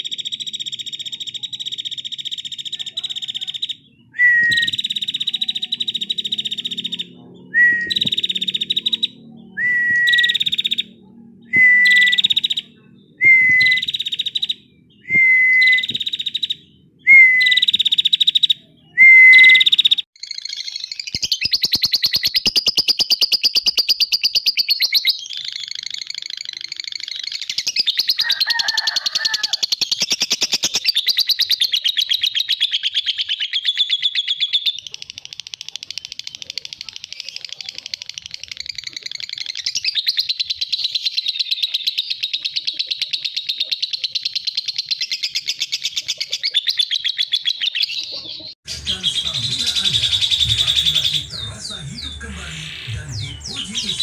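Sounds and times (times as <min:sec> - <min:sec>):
songbird trilling: 0:00.0 - 0:11.0, 0:11.6 - 0:19.0.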